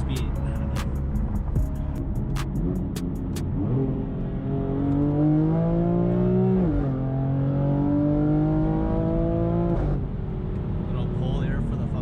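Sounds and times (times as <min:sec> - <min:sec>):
car engine accelerating: 0:00.0 - 0:12.0
sharp clicks: 0:02.3 - 0:03.4.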